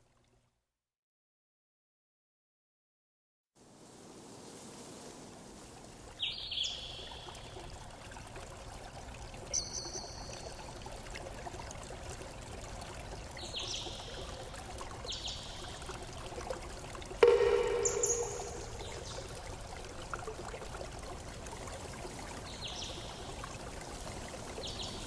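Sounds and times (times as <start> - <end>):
water trickling: 3.8 - 25.0
birds chirping: 17.2 - 19.4.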